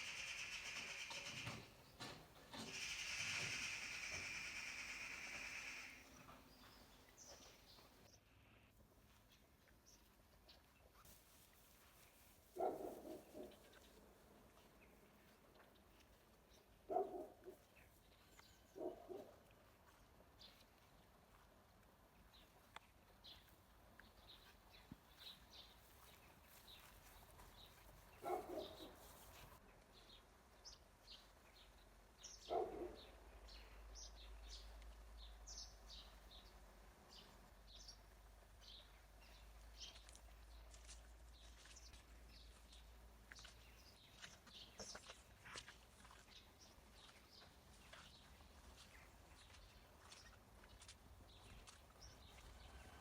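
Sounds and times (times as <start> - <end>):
small birds chirping: 0.0 - 11.0, 22.2 - 52.8.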